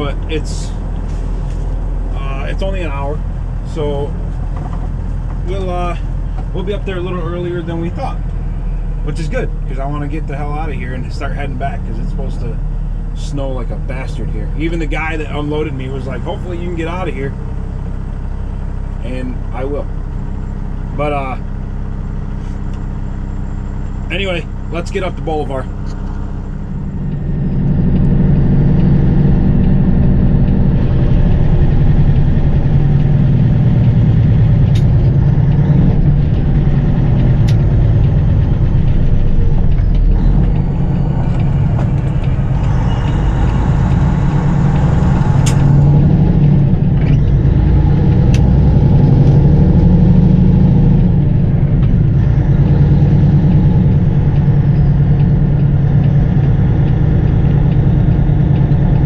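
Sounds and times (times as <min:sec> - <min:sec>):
truck diesel engine pulling away: 0:00.0 - 0:59.0
sharp clicks: 0:25.8 - 0:49.9.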